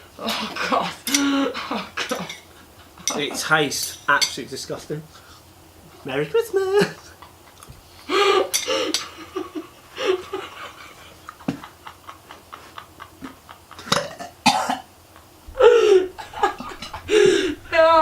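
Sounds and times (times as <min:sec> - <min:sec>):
man coughing: 0:14.0 - 0:14.9.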